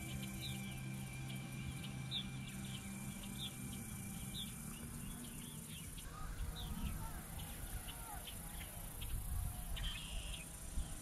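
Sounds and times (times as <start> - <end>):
birds twittering: 0.0 - 11.0
soft ambient music: 0.0 - 11.0.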